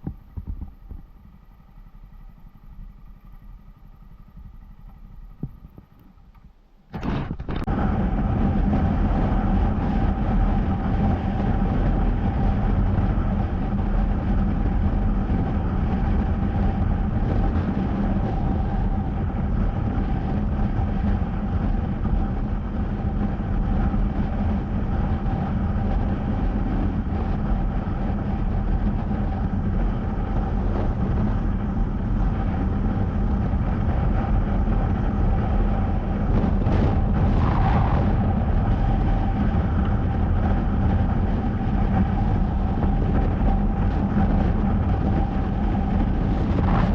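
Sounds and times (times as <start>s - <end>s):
motorcycle engine cruising: 0.0s - 46.9s.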